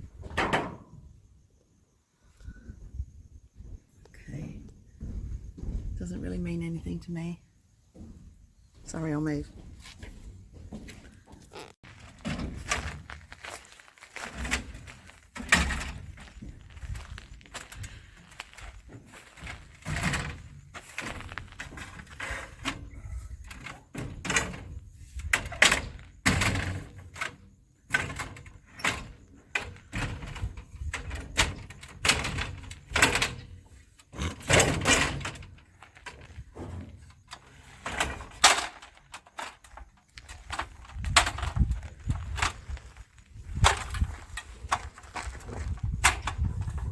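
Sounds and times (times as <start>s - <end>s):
knocks and thuds of pipes: 0.0s - 1.2s, 4.9s - 6.6s, 7.9s - 13.2s, 14.2s - 42.7s.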